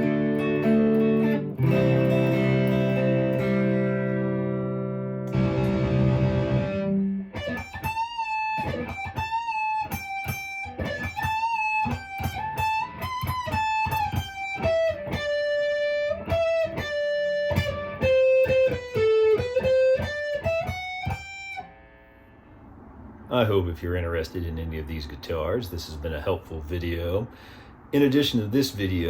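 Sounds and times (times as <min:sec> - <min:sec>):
clean electric guitar melody: 0:00.0 - 0:22.4.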